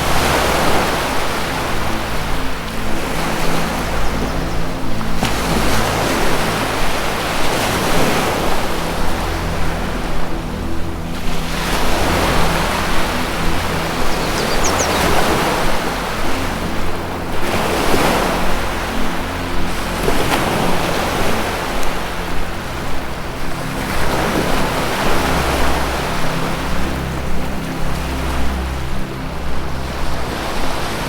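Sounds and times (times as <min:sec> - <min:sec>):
low music drone: 0:00.0 - 0:31.0
ocean surf washing ashore: 0:00.0 - 0:31.0
high bird chirp: 0:14.0 - 0:15.4.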